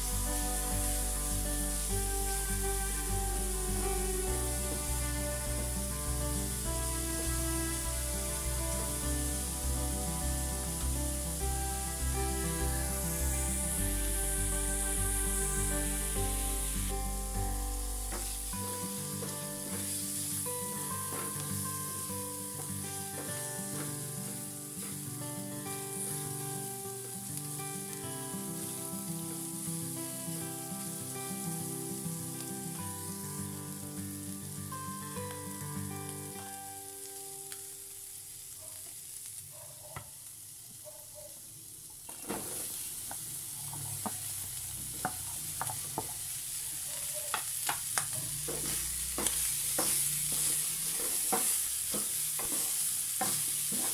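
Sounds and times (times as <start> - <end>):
melodic background music: 0.0 - 37.2
beans and pork sizzling in a pan: 0.0 - 53.9
wooden spatula stirring: 42.1 - 53.9.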